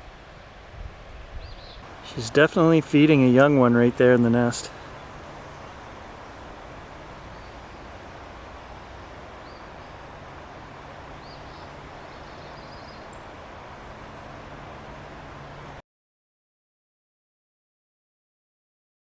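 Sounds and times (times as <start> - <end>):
low steady hum: 0.0 - 15.8
rushing water: 0.0 - 15.8
faint high bird chirps: 1.2 - 2.2, 4.7 - 8.0, 8.6 - 10.2, 10.9 - 14.4.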